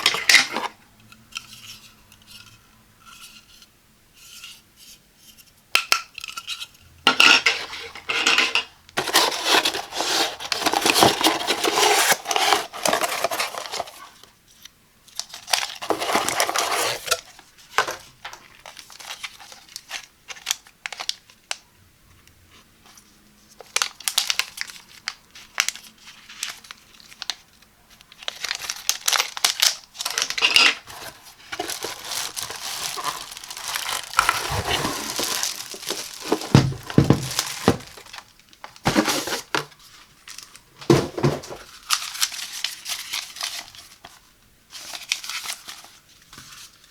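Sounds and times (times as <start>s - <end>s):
packaging rustling: 9.0s - 14.3s, 15.2s - 21.3s, 28.1s - 46.8s
plastic parts clicking and knocking: 28.9s - 39.7s.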